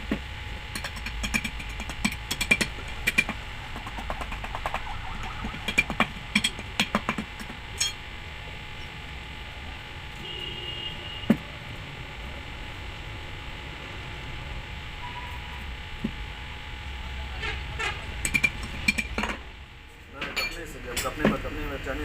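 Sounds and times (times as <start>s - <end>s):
steady background hum: 0.0s - 22.0s
hard objects clinking and tapping: 0.7s - 8.0s, 18.2s - 19.4s.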